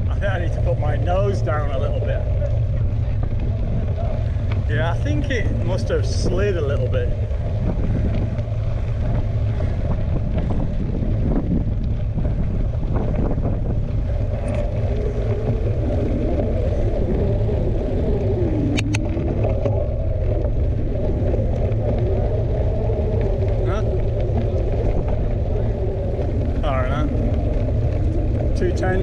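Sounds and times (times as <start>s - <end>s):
wind buffeting microphone: 0.0s - 29.0s
sharp clicks: 18.7s - 19.1s.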